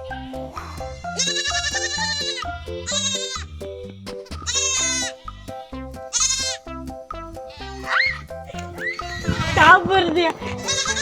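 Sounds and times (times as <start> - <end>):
background music with steady beat: 0.0 - 11.0
goat kid bleating: 1.0 - 3.6, 4.4 - 6.7, 7.5 - 9.7, 10.4 - 11.0.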